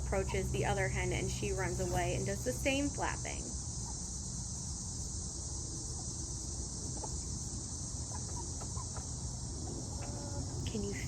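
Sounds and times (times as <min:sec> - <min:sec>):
high-pitched insect chorus: 0:00.0 - 0:11.0
soft chicken chirps: 0:06.9 - 0:10.6.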